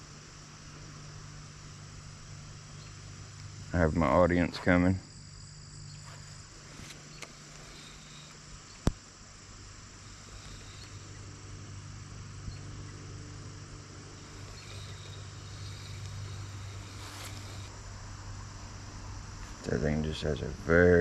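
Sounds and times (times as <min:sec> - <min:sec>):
crickets chirping: 0:00.0 - 0:21.0
low steady hum: 0:00.0 - 0:21.0.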